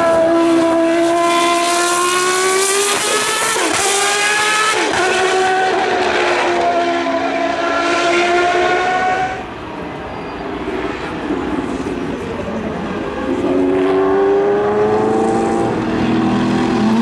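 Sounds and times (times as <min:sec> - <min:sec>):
racing car engine at high revs: 0:00.0 - 0:09.6, 0:10.5 - 0:17.0.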